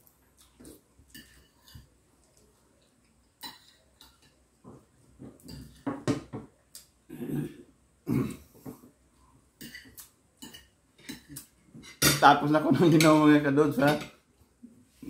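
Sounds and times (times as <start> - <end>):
person chewing and smacking: 0.0 - 1.4, 6.6 - 7.0.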